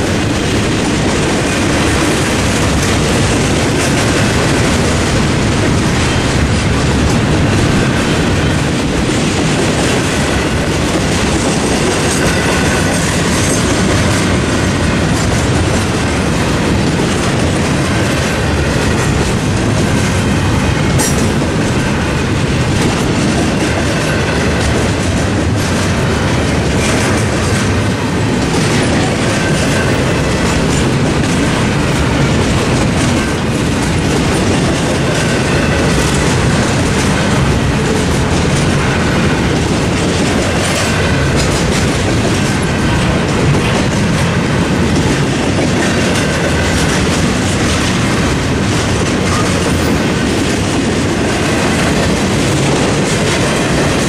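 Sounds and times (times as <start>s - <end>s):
freight train rumbling: 0.0s - 54.0s
wheels clacking over rail joints: 0.0s - 54.0s.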